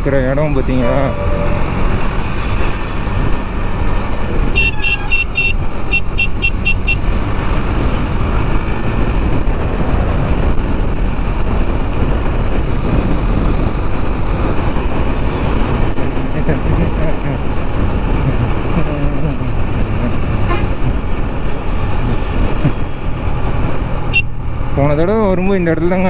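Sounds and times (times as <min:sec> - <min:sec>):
motorcycle engine: 0:00.0 - 0:25.9
wind rush: 0:00.6 - 0:24.8
short high horn toots: 0:04.6 - 0:07.0.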